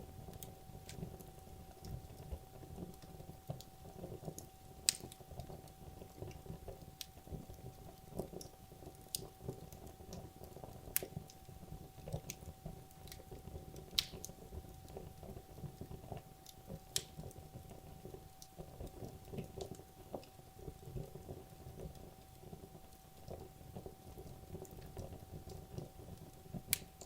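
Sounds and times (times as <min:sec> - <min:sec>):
wood logs burning in fireplace: 0:00.0 - 0:27.0.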